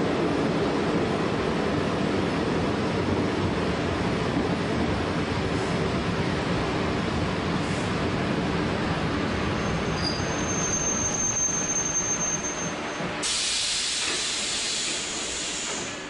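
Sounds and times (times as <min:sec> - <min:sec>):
train running noise: 0:00.0 - 0:16.0
high brake squeal: 0:09.6 - 0:15.9
compressed air hiss: 0:13.2 - 0:16.0.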